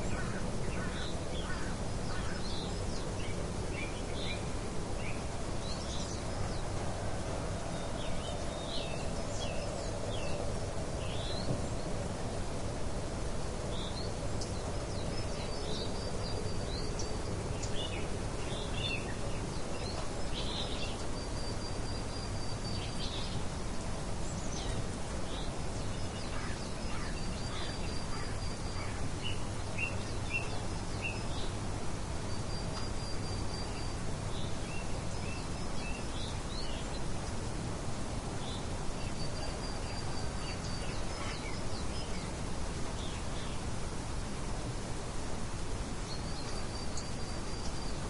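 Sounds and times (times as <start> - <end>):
light wind rushing: 0.0 - 48.0
small birds chirping: 13.7 - 43.9, 45.6 - 48.0.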